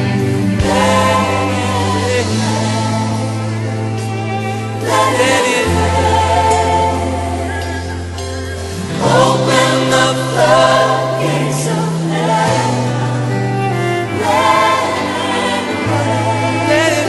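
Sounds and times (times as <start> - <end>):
band playing worship song: 0.0 - 17.0
choir singing: 0.0 - 17.0
sustained bass line: 0.0 - 17.0.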